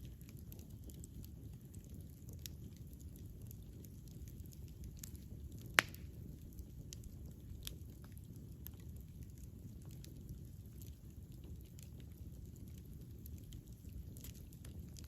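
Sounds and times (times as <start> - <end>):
campfire rumbling and crackling: 0.0 - 15.0
loud pop from fire: 5.7 - 6.2.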